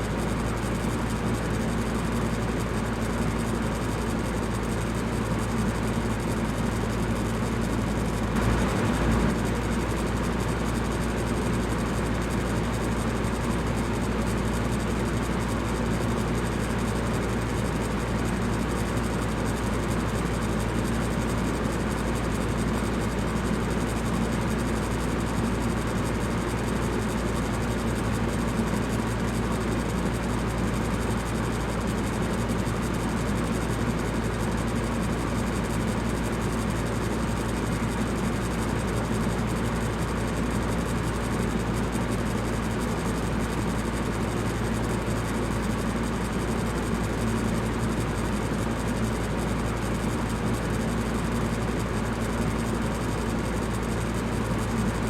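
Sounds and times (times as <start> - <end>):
electric fan whooshing: 8.3 - 10.7
low hum: 8.3 - 10.9.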